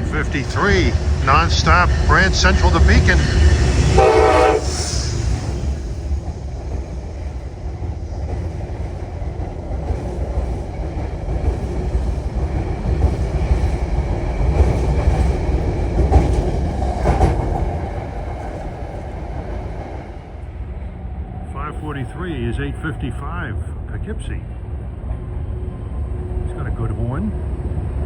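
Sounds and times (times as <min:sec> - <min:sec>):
clickety-clack over rail joints: 0:00.0 - 0:20.5
train wheels rumbling: 0:00.0 - 0:28.0.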